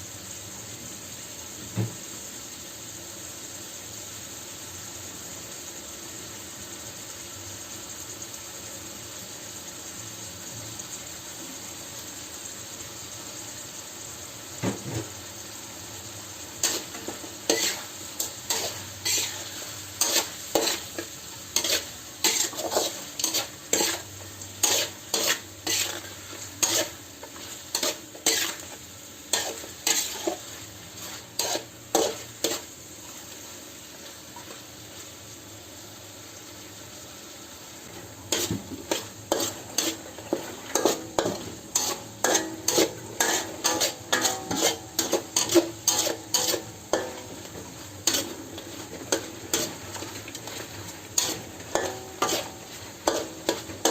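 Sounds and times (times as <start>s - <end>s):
food sizzling in a pan: 0.0s - 53.9s
metal spatula scraping a pan: 16.5s - 32.8s, 38.2s - 53.9s.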